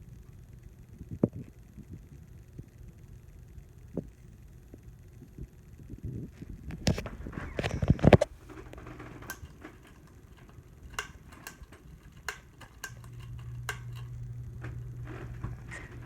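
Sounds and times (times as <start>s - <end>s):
motor hum: 0.0s - 16.0s
ceiling fan clicks: 0.1s - 16.0s.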